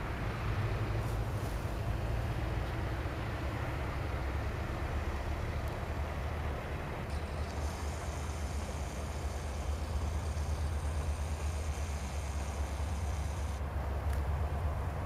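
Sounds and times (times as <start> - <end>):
distant train rumble: 0.0 - 15.0
faint high whine: 4.5 - 13.8.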